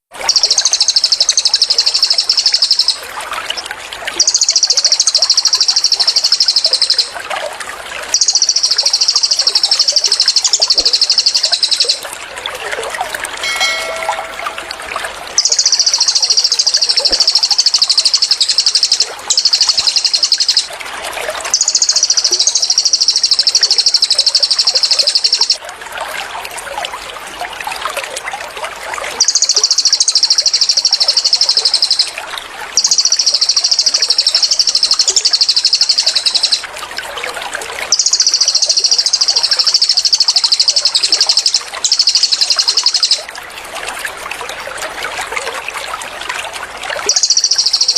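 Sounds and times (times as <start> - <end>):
trickling water: 0.0 - 47.9
bird fast high repeated notes: 13.4 - 20.7, 47.1 - 47.9.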